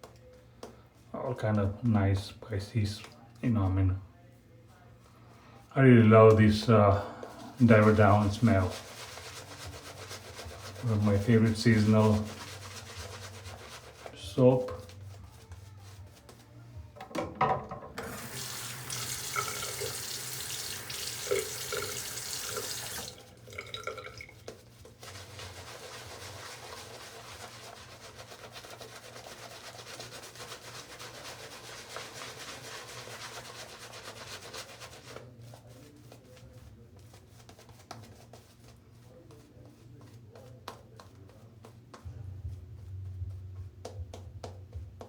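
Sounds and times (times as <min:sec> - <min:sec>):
tap running into a sink: 0:17.0 - 0:24.6.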